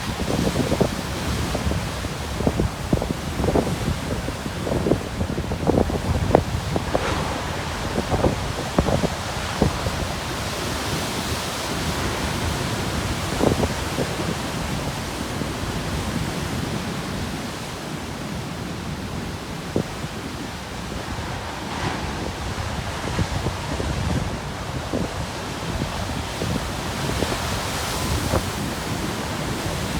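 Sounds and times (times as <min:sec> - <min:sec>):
surf breaking on rocks: 0:00.0 - 0:14.4
wind buffeting microphone: 0:00.0 - 0:29.9.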